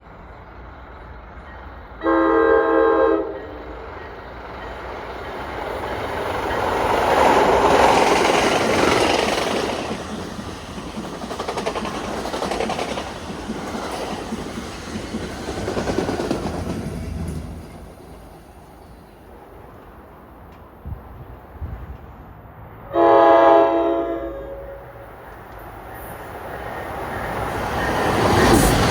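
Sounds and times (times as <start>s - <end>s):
train rumble and wheel clatter: 0.0s - 28.9s
train horn blast: 2.0s - 3.7s, 22.8s - 25.1s.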